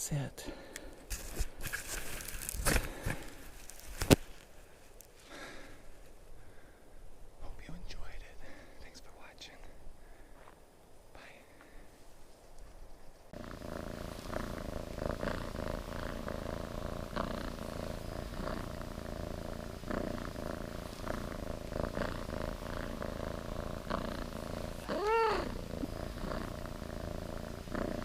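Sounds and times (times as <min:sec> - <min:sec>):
bike tyres crunching on gravel: 0:01.1 - 0:04.5
steady hum: 0:13.2 - 0:28.0.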